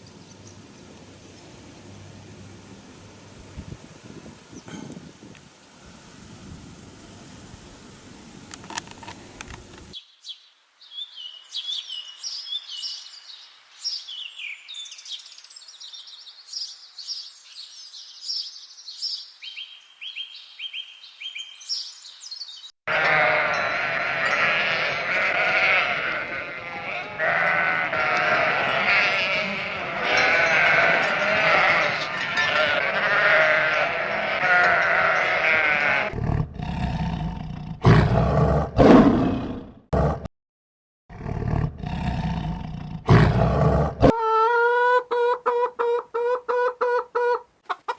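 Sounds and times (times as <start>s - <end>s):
dense chorus of animals calling: 22.9s - 36.1s.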